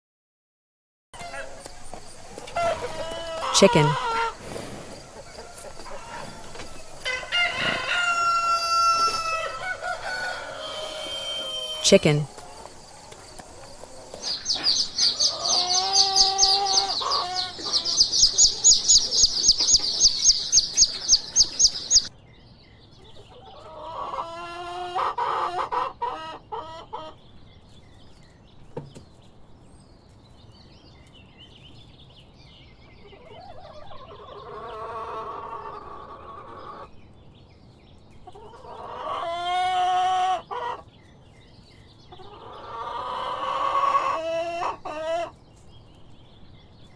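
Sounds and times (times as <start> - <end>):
rooster crowing: 1.2 - 14.3
chickens clucking: 1.2 - 22.1, 23.0 - 29.3, 33.0 - 37.1, 37.7 - 46.9.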